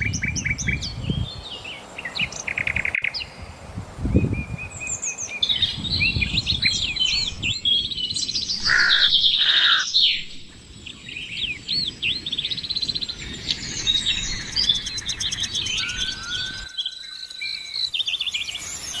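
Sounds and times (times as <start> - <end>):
birds chirping: 4.1 - 19.0.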